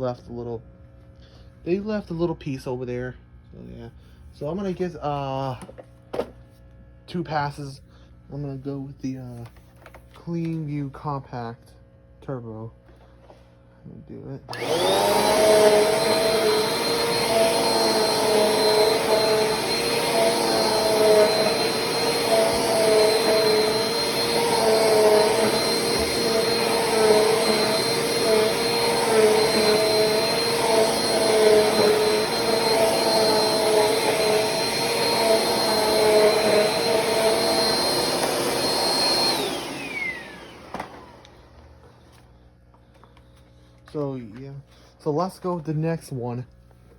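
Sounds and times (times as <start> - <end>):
vacuum cleaner motor whine: 14.5 - 42.2.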